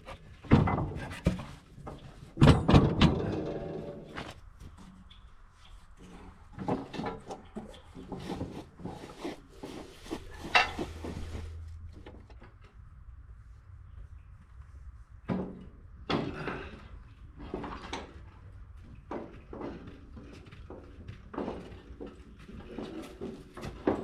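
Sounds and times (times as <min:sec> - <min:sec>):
parts knocking and clanking: 0:00.0 - 0:12.7.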